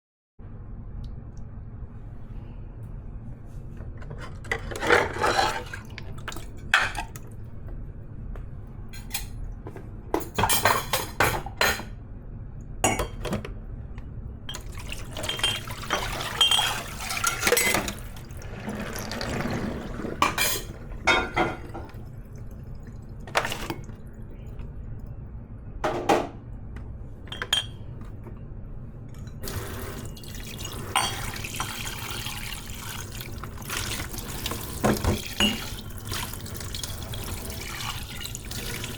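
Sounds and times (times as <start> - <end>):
dishes clinking and clattering: 4.2 - 7.2, 10.1 - 12.0, 12.8 - 13.4, 14.5 - 22.1, 23.3 - 24.0, 27.3 - 28.2, 30.2 - 32.8, 34.4 - 35.9
tap water running: 14.5 - 24.0, 29.4 - 38.9.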